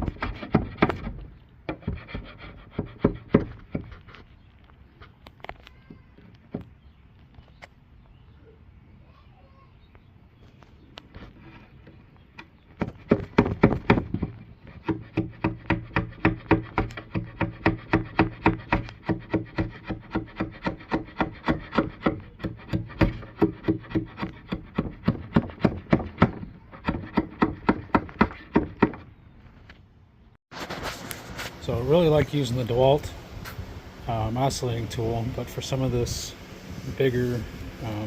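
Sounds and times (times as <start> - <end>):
rhythmic scraping on wood: 0.0 - 5.2, 11.0 - 29.1.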